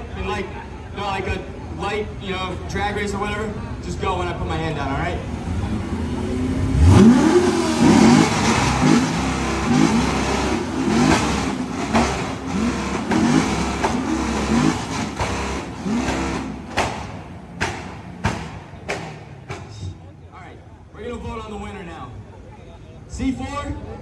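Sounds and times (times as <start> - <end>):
car exhausts revving: 5.2 - 20.1
exhaust cracks: 5.2 - 20.1.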